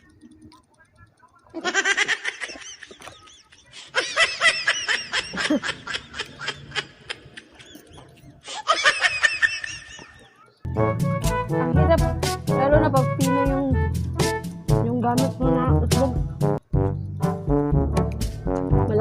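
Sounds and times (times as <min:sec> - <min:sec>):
person laughing: 0:01.5 - 0:10.3.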